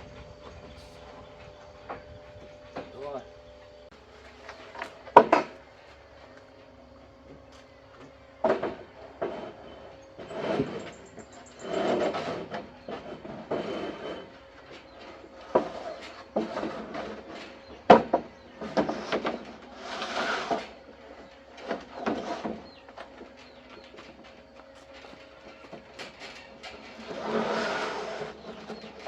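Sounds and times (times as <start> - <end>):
knocks of building work: 4.4 - 5.7, 7.2 - 29.0
scraping: 8.4 - 29.0.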